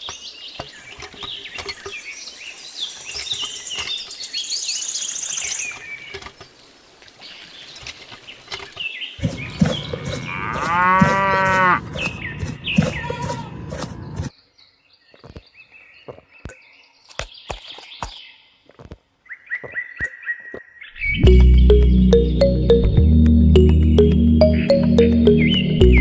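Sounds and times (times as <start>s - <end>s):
birds chirping and trilling: 0.0s - 18.6s, 19.2s - 22.7s, 23.9s - 26.0s
low rural background: 0.0s - 19.4s
cow mooing: 9.8s - 12.0s.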